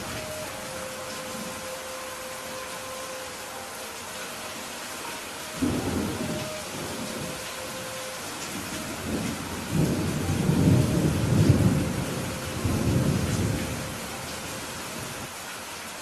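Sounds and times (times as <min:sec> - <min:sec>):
steady rain falling: 0:00.0 - 0:16.0
distant thunder rumble: 0:05.6 - 0:14.2.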